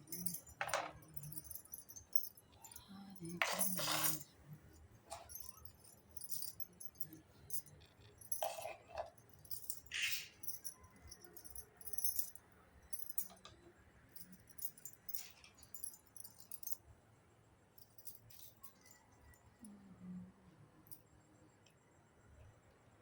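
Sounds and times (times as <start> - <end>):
toy pieces clinking and rattling: 0.0 - 4.3, 5.1 - 13.5.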